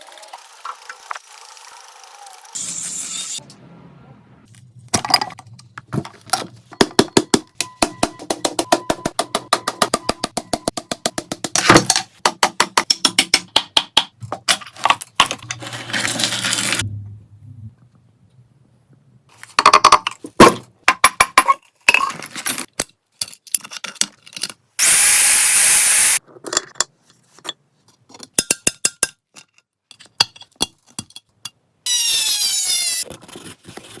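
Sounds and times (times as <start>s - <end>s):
power tool running: 24.8s - 26.2s.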